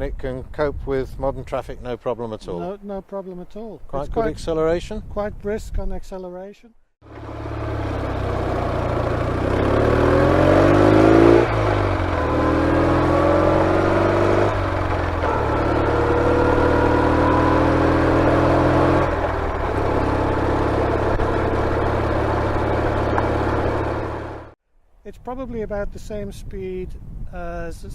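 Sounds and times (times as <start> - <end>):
motorcycle engine accelerating: 7.0 - 24.6.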